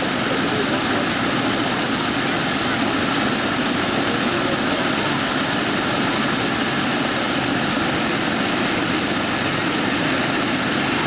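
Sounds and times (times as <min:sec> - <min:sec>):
propeller aircraft engine drone: 0:00.0 - 0:11.0.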